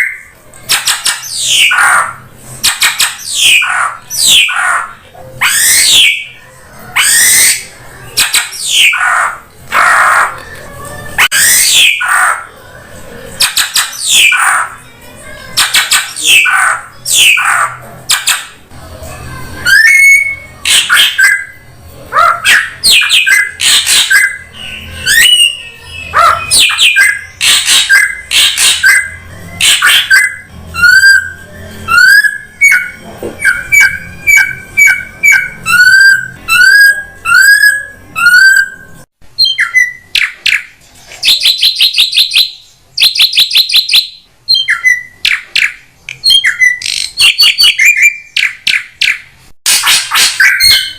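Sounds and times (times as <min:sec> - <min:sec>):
bird squawks and rising whistles: 0:22.4 - 0:50.9.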